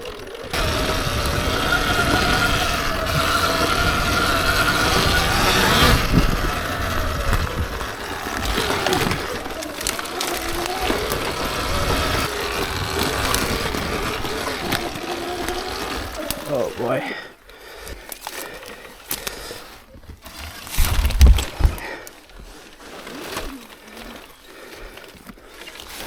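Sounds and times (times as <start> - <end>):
electric motor whine: 0.0 - 16.8.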